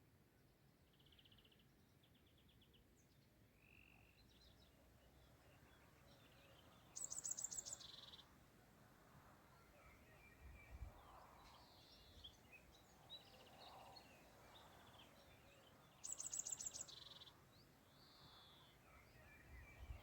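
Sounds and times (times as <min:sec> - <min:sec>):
loud bird song phrase: 0:00.8 - 0:08.4, 0:09.5 - 0:20.0
birds chirping and trilling: 0:09.6 - 0:20.0.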